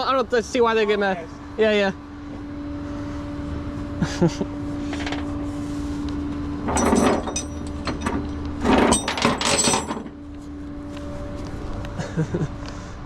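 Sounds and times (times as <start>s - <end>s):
steady low hum: 0.0s - 13.0s
clattering knocks and rattles: 6.6s - 10.2s.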